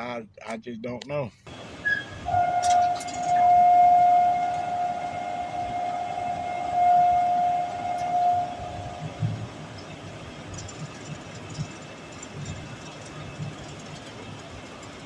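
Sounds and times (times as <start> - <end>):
steady horn-like tone: 1.8 - 10.0.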